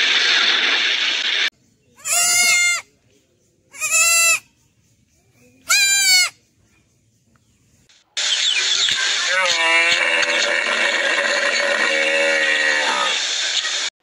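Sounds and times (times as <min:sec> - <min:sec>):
young goat bleating: 0:02.0 - 0:02.9, 0:03.7 - 0:04.5, 0:05.6 - 0:06.4.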